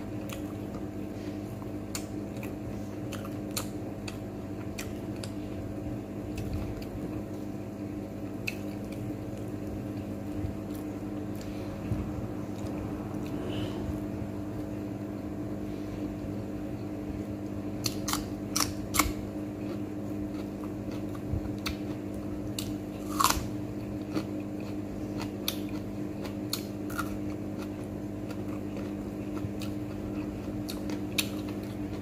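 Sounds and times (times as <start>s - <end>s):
steady low hum: 0.0s - 32.0s
wet biting and chewing: 1.6s - 5.4s, 8.4s - 11.5s, 17.8s - 32.0s.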